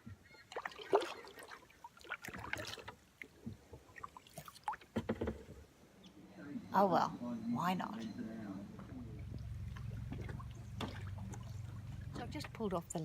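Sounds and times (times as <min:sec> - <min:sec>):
paddle splashing in water: 0:00.0 - 0:05.7, 0:08.7 - 0:12.7.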